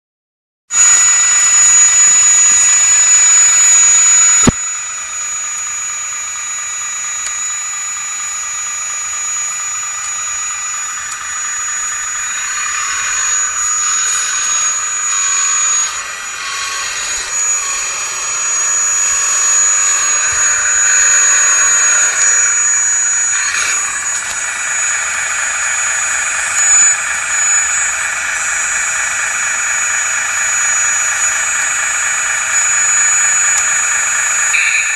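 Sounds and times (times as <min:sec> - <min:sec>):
high-pitched hydraulic pump whine: 0:00.7 - 0:34.9
click: 0:04.2 - 0:04.6, 0:07.2 - 0:07.4, 0:33.2 - 0:33.7.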